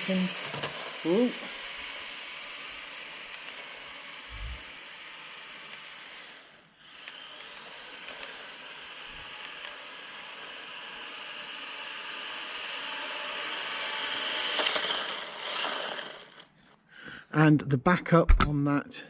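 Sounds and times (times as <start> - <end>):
electric motor whine: 0.0 - 16.5.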